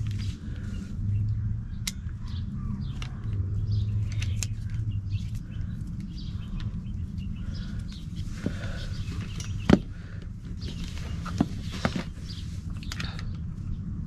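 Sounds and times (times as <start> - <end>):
birds chirping: 0.0 - 14.0
low rumble: 0.0 - 14.0.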